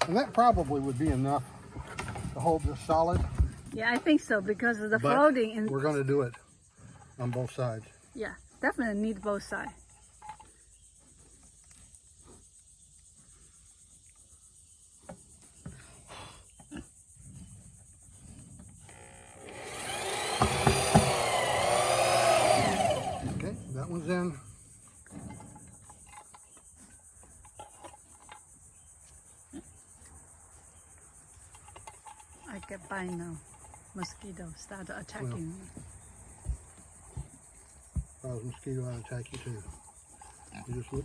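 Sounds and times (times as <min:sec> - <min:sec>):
faint knocks and handling: 0:00.0 - 0:04.1
insects chorus: 0:00.0 - 0:41.0.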